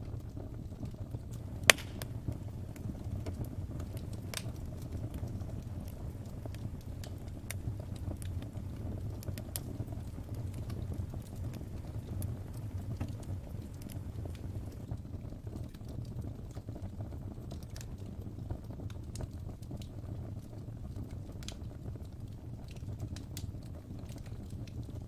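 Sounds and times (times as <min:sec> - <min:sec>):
burning logs popping: 0:00.0 - 0:25.0
low rumble of flames: 0:00.0 - 0:25.0.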